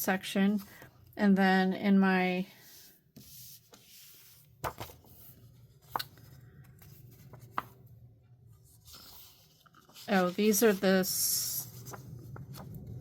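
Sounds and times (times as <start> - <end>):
paper pages turning: 3.2 - 7.9, 8.5 - 13.0.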